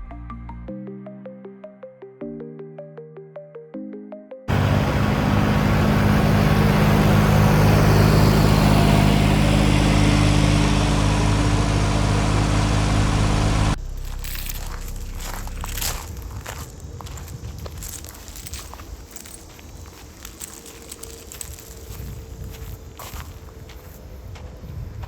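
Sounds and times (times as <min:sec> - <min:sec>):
engine running loud: 0:04.5 - 0:16.2
crunching sounds: 0:13.8 - 0:24.0.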